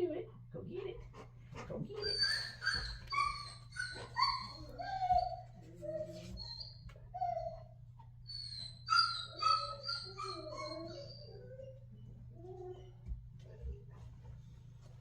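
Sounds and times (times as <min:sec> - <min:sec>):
puppy whining: 0:01.9 - 0:13.8.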